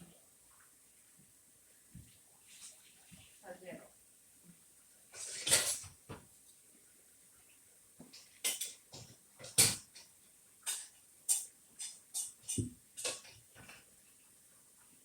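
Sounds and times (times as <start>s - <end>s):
tableware clicking: 8.4s - 13.8s.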